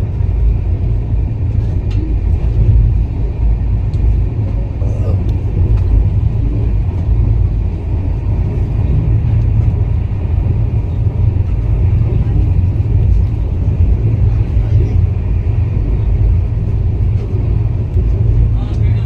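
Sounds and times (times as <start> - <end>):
loud low rumble: 0.0 - 19.0
faint voices: 4.5 - 6.5, 10.7 - 19.0.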